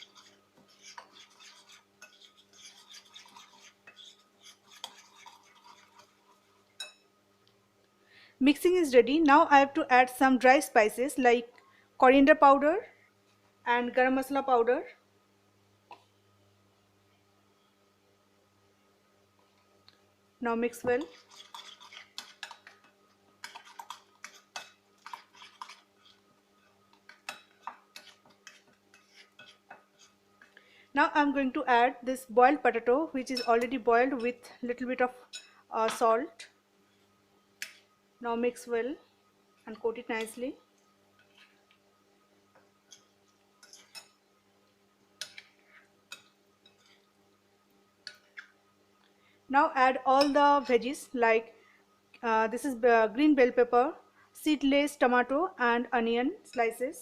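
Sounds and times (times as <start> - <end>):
spoon scraping mixing bowl: 0.0 - 6.7, 20.8 - 30.6, 45.2 - 47.1.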